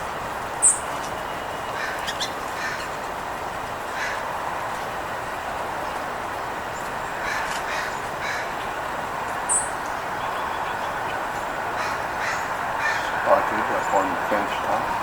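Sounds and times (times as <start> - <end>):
steady background hum: 0.0 - 15.0
small birds chirping: 0.5 - 3.2, 6.7 - 15.0.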